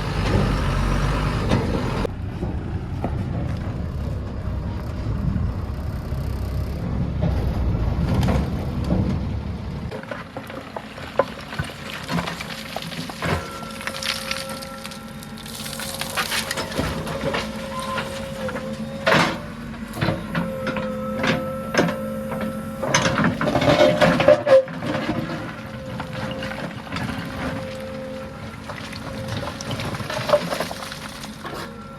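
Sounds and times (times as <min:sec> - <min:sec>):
backhoe engine rumble and whine: 0:00.0 - 0:31.9.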